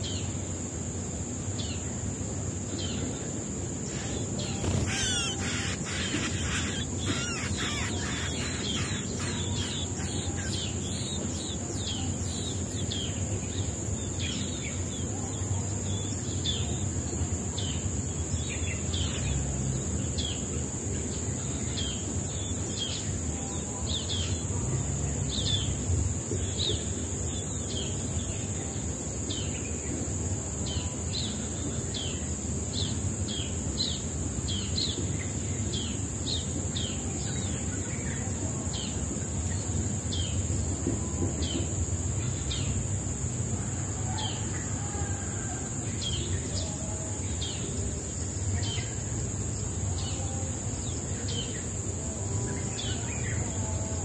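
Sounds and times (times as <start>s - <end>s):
high insect drone: 0.0s - 54.0s
small birds chirping: 2.7s - 30.0s.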